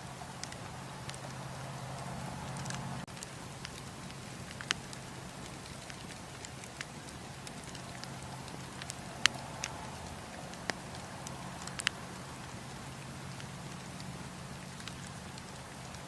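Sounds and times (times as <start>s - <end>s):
burning wood crackling and popping: 0.0s - 16.0s
campfire rushing: 0.0s - 16.0s.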